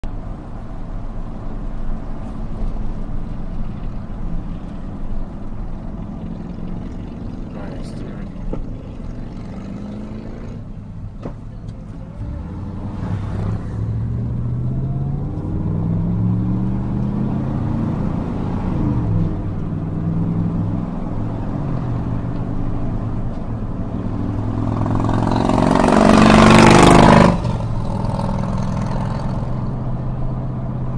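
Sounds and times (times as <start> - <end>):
car engine and road noise: 0.0 - 30.9
loud rush of engine noise: 1.7 - 30.9.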